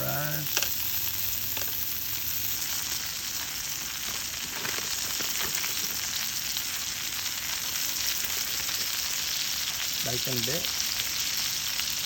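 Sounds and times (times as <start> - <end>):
fries sizzling in a pan: 0.0 - 12.0.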